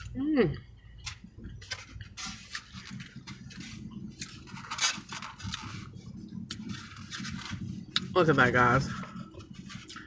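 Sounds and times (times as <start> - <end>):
person chewing food: 1.0 - 8.1.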